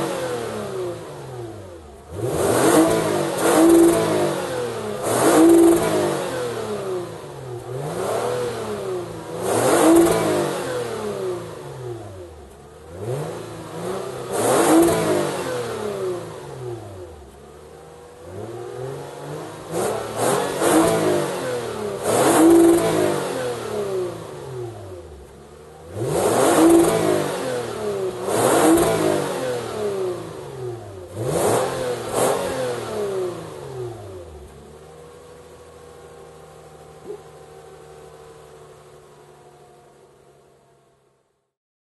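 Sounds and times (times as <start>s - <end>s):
car engine revving: 0.0s - 40.7s.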